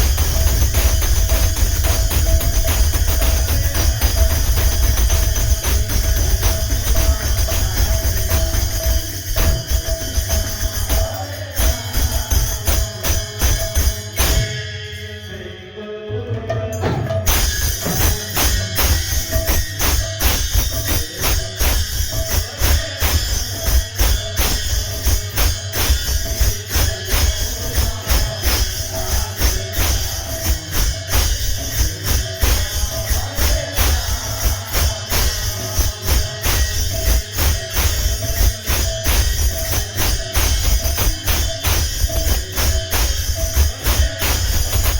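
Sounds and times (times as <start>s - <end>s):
fast drum beats: 0.0s - 14.6s, 16.2s - 44.9s
held drone note: 0.0s - 15.9s
jingling metal percussion: 0.0s - 44.9s.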